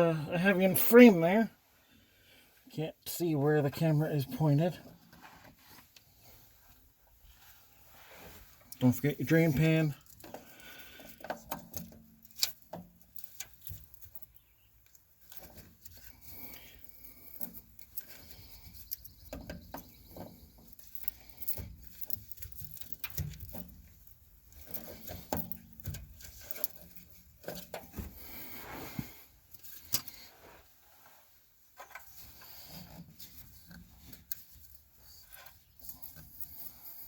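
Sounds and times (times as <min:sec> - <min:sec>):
clicks knocks and scraping of tools: 0:10.0 - 0:30.3, 0:31.7 - 0:37.0.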